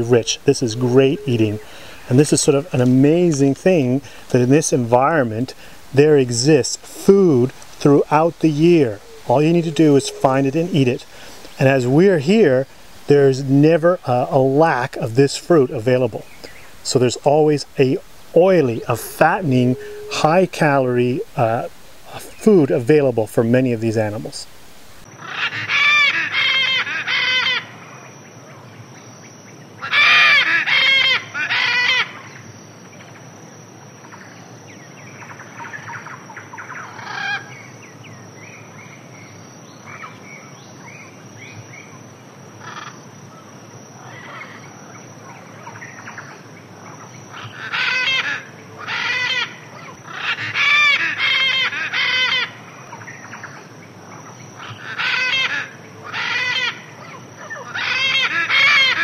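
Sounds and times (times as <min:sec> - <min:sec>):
harsh bird calls: 0:00.0 - 0:24.5, 0:44.0 - 0:59.0
steady high whine: 0:00.0 - 0:25.0.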